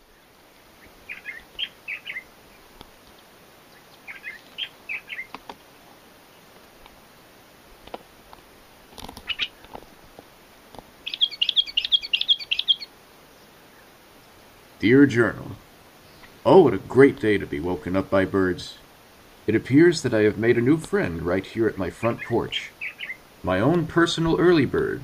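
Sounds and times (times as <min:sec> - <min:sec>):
birds singing whistled notes: 0:00.0 - 0:02.7, 0:03.7 - 0:05.4, 0:09.2 - 0:09.7, 0:11.0 - 0:13.9, 0:16.0 - 0:16.4, 0:22.0 - 0:23.2
bird chattering: 0:00.8 - 0:02.6, 0:03.7 - 0:05.4, 0:09.2 - 0:09.7, 0:11.0 - 0:12.9, 0:21.7 - 0:23.2.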